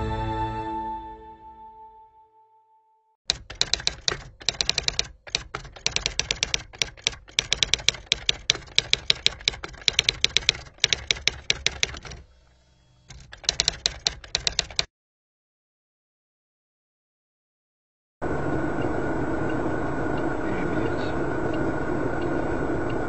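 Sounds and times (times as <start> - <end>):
typewriter key clicks: 3.3 - 12.2, 13.1 - 14.9.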